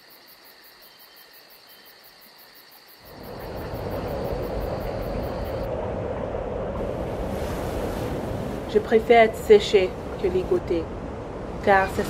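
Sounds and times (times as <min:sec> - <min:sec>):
loud steady rushing noise: 0:03.0 - 0:12.0.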